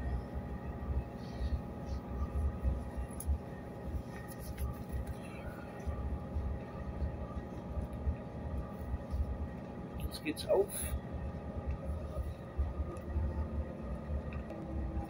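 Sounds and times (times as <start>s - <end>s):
electrical hum: 0.0s - 15.0s
train interior rumble: 0.0s - 15.0s.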